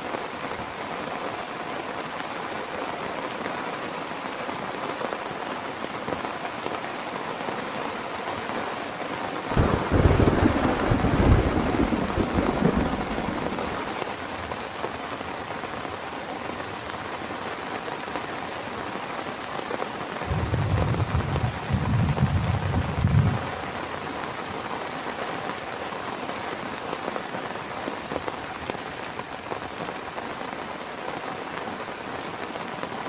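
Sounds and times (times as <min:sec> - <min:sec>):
heavy rain falling: 0:00.0 - 0:33.0
thunder rumbling: 0:09.5 - 0:14.0, 0:20.2 - 0:23.9.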